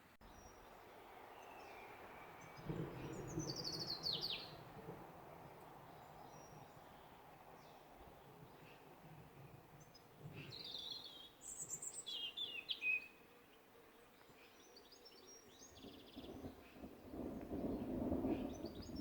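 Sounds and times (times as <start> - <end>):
birds singing: 0.3 - 4.6, 9.8 - 13.2, 14.0 - 19.0.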